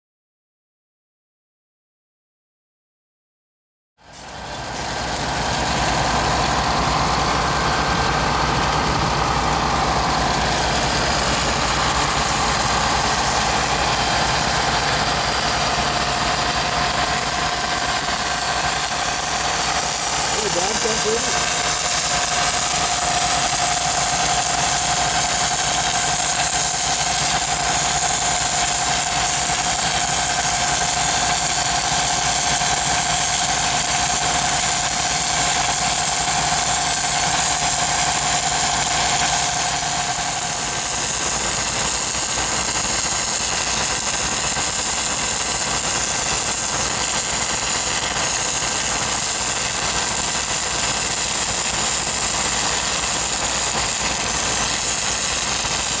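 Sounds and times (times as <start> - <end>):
welding machine engine running: 4.0 - 56.0
steady whine: 4.2 - 28.1.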